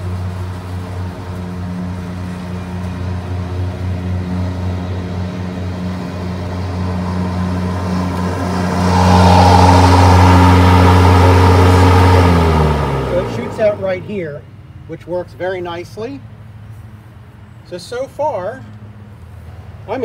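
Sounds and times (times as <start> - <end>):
mower cutting grass hiss: 0.0 - 14.1
electric lawn mower humming: 0.0 - 14.2.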